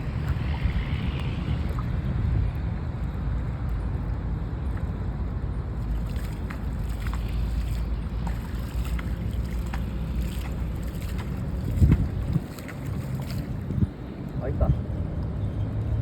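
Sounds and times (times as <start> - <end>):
wind rumbling on microphone: 0.0 - 16.0
faint small splashes: 4.6 - 14.4.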